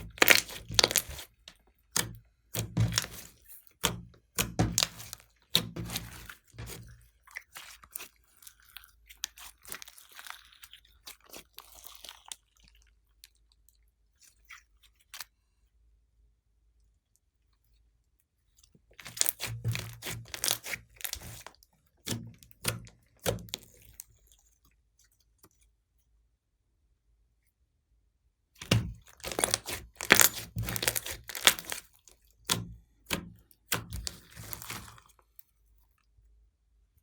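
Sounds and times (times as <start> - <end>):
slime crackling and popping: 0.0 - 8.1, 19.0 - 24.0, 28.6 - 35.1.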